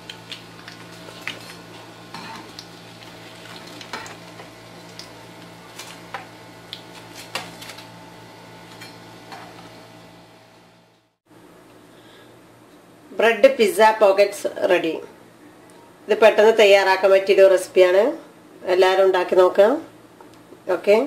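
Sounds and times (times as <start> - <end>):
food sizzling in oil: 0.2 - 6.7.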